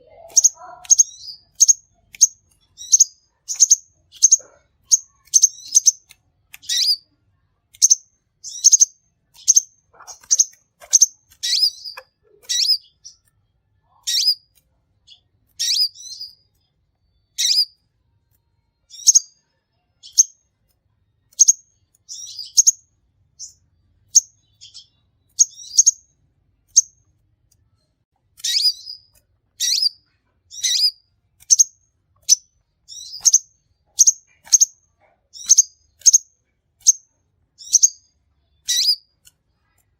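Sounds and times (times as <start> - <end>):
sunbird high chirps: 0.0 - 7.0, 7.8 - 13.2, 14.0 - 14.5, 15.1 - 16.4, 17.2 - 17.8, 18.9 - 19.3, 21.3 - 22.8, 23.4 - 26.1, 28.4 - 39.1.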